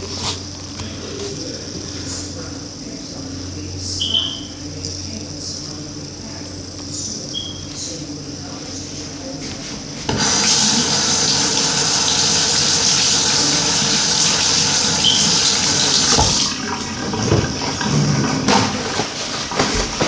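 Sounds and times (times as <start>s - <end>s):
tap running into sink: 10.1s - 20.0s.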